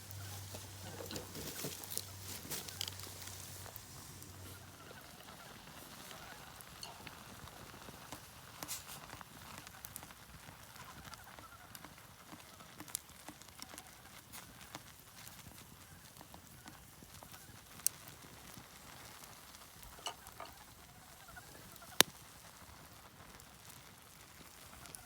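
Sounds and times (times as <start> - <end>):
campfire crackling and popping: 0.0 - 25.0
outdoor background hiss: 0.0 - 25.0.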